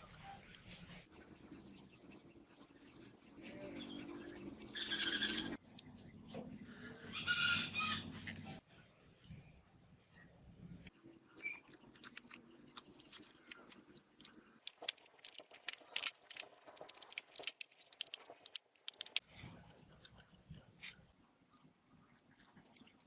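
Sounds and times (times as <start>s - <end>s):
small hard parts clicking: 11.4s - 19.3s.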